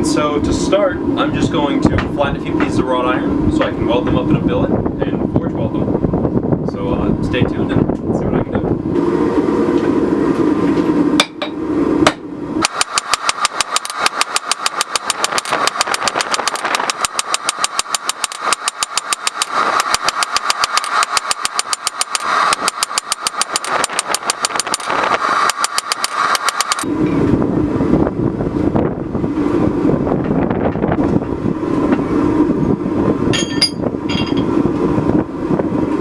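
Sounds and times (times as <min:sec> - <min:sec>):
hammer blows on iron: 0:33.3 - 0:34.6.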